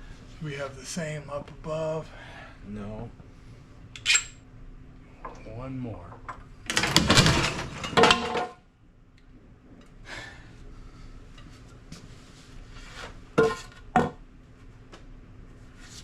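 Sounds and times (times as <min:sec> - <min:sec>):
metal tools clinking: 0:04.0 - 0:04.4.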